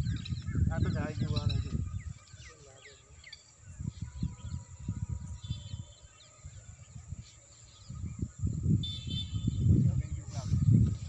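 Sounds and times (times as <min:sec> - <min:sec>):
small birds chirping: 0:00.0 - 0:11.0
low rumbling microphone noise: 0:03.0 - 0:11.0.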